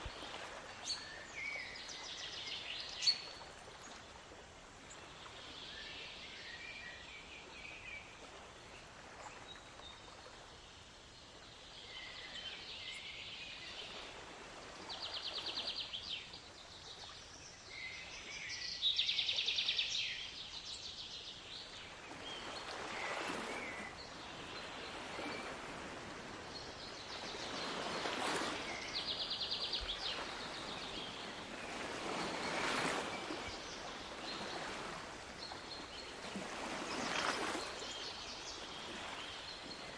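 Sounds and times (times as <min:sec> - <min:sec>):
steady wash of water: 0:00.0 - 0:39.9
waves surging in: 0:00.0 - 0:39.9
songbirds chirping and trilling: 0:15.0 - 0:39.9.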